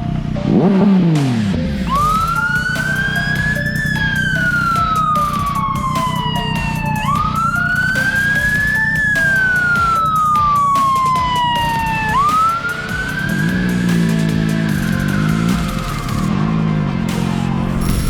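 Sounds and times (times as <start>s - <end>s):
emergency vehicle siren wailing: 0.0s - 18.0s
low rumble: 17.5s - 18.0s.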